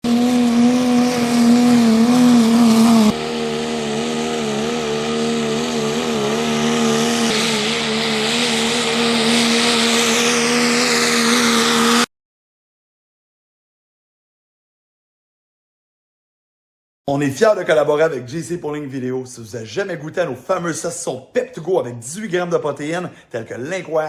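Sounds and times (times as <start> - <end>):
diesel truck engine under load: 0.0 - 12.0.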